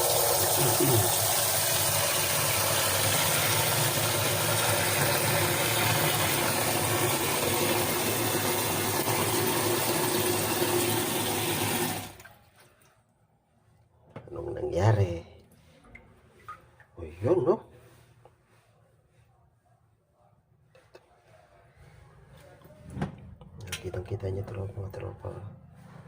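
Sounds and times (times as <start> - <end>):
water running from a tap: 0.0 - 12.3.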